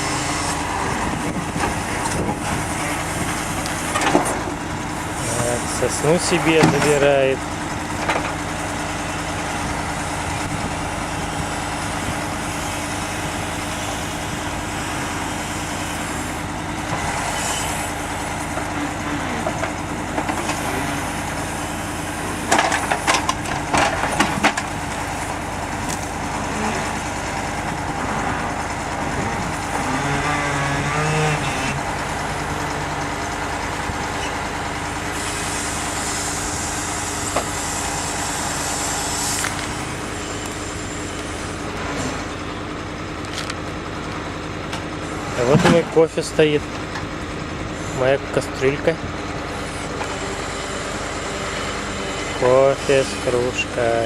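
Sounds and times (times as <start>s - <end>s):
heavy diesel truck engine: 0.0s - 54.0s
knocks and clatter: 1.0s - 4.7s, 7.8s - 8.4s, 22.4s - 26.1s.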